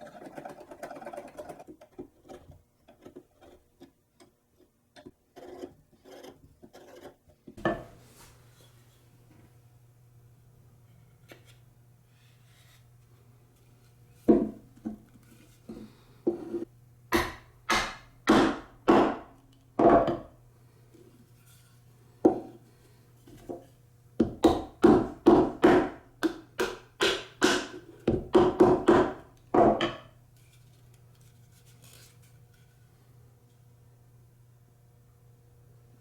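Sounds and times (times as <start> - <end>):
hollow knocks on wood: 14.3 - 15.0, 17.1 - 20.3, 24.2 - 30.1.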